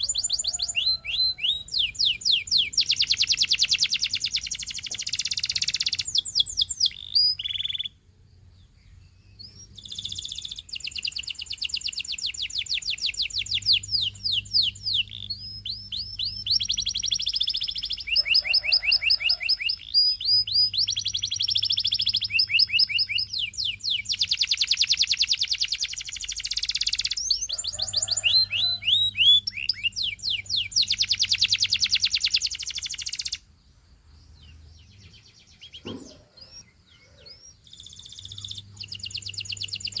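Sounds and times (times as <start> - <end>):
canary singing trills: 0.0 - 40.0.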